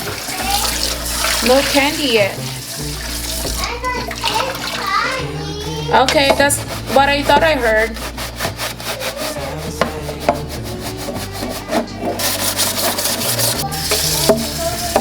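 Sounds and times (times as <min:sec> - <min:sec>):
running water hiss: 0:00.0 - 0:05.2, 0:12.2 - 0:15.0
scrubbing on hard surface: 0:00.0 - 0:15.0.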